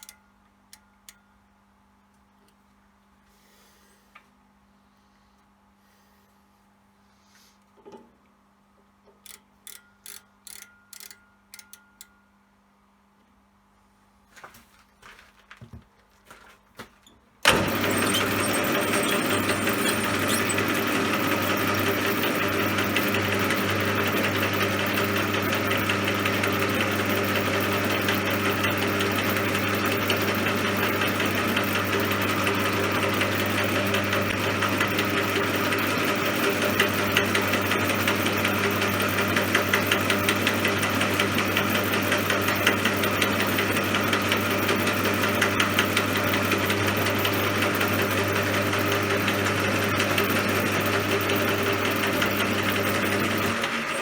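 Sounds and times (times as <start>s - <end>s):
metal lathe running: 17.5s - 54.0s.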